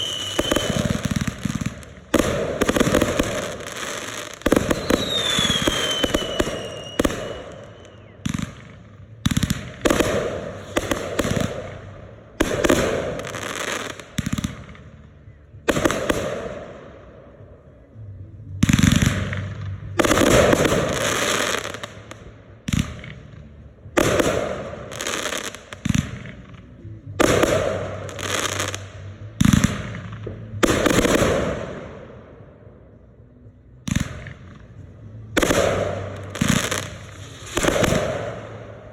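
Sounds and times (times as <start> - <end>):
falling firework whistle: 0.0 - 1.2, 4.6 - 8.4
fireworks bursting: 0.0 - 17.0, 18.6 - 32.2, 33.9 - 38.9.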